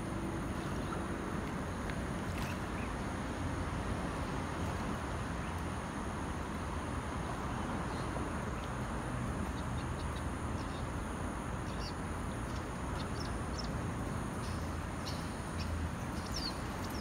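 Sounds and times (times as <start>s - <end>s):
small birds chirping: 14.4s - 17.0s.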